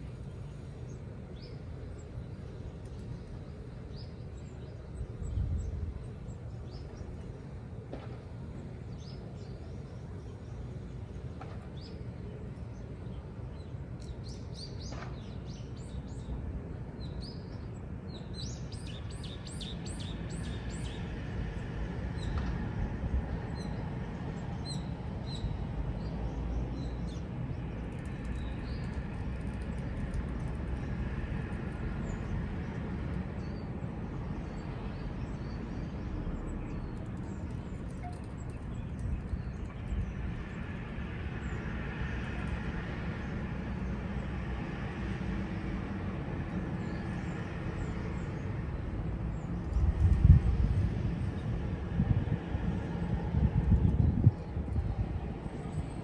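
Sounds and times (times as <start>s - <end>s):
low outdoor rumble: 20.2s - 56.0s.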